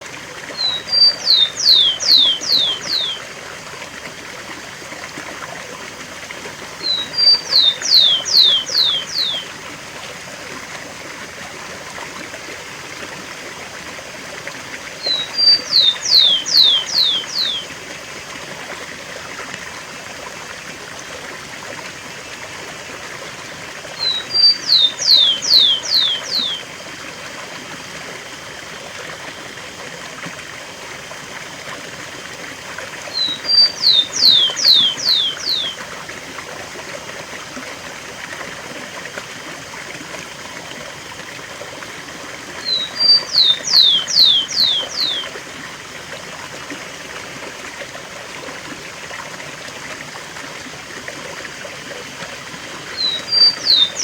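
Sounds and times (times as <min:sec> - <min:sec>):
sparrow singing whistles: 0:00.6 - 0:03.2, 0:06.8 - 0:09.5, 0:15.0 - 0:17.7, 0:24.0 - 0:26.7, 0:33.1 - 0:35.8, 0:42.6 - 0:45.3, 0:53.0 - 0:54.0
waterfall rushing: 0:33.1 - 0:35.7.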